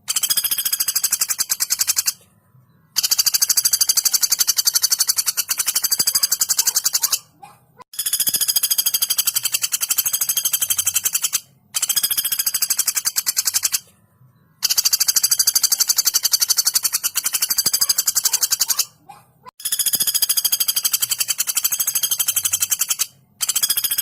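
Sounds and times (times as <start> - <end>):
woodpecker rattling trills: 0.0 - 2.3, 2.9 - 13.9, 14.6 - 24.0.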